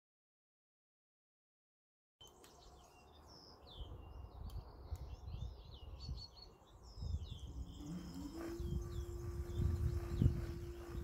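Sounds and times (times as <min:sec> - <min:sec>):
birds chirping: 0:02.2 - 0:11.0
irregular low rumble: 0:07.1 - 0:11.0.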